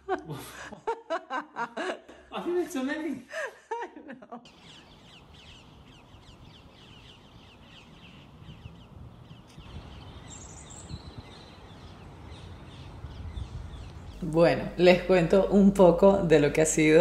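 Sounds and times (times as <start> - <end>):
small birds chirping: 4.5 - 17.0.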